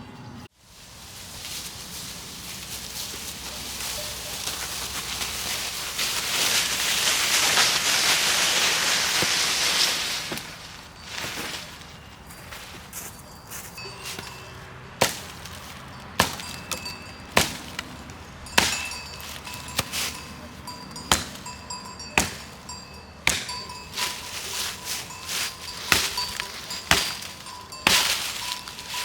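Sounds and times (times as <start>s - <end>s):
sharp chopping strikes: 15.0s - 20.3s, 20.9s - 29.0s.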